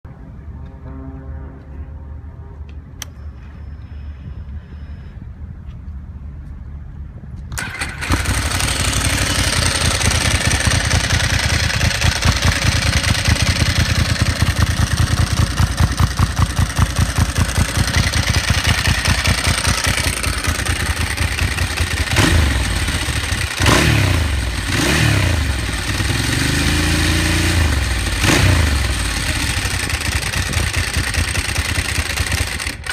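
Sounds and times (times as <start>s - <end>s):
motorcycle engine starting: 7.5s - 32.9s
engine revving: 7.6s - 32.9s
motorcycle engine idling: 7.6s - 32.9s.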